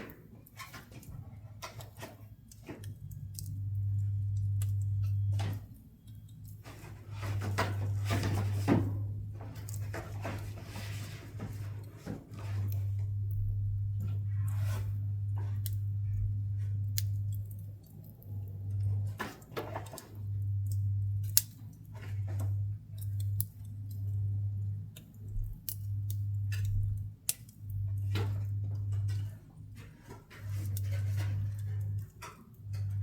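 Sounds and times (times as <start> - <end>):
wood fire popping and snapping: 0.0 - 33.0
low hum: 2.9 - 5.8, 12.3 - 19.2, 20.0 - 33.0.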